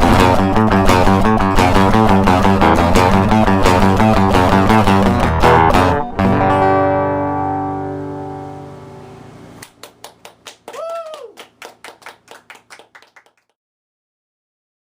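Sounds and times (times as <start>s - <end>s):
acoustic guitar chord ringing: 0.0s - 9.6s
people clapping: 9.6s - 13.6s
person whooping: 10.6s - 11.9s.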